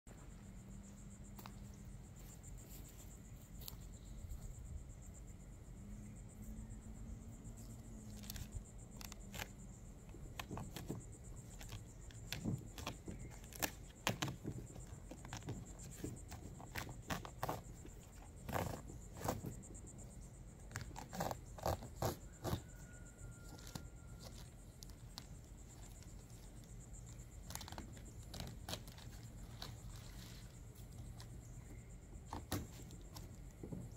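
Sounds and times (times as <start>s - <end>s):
steady low hum: 0.1s - 33.9s.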